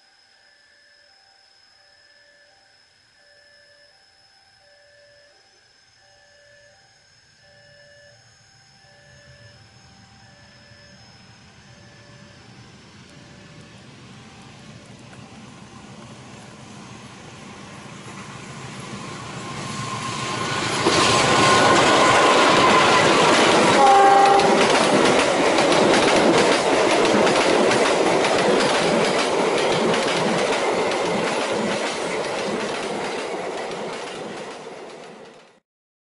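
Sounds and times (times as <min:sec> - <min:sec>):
passenger train passing: 0:09.2 - 0:35.6
wheels clacking over rail joints: 0:20.2 - 0:35.6
train horn blast: 0:21.0 - 0:25.1.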